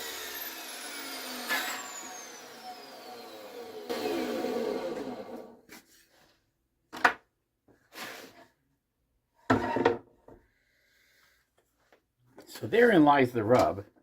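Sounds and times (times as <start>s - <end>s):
table saw winding down: 0.0s - 5.6s.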